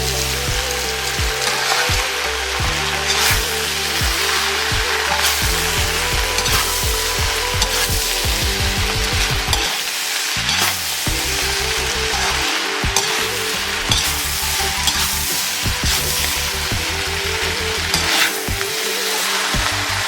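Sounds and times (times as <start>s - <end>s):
food sizzling in a hot pan: 9.7s - 19.8s.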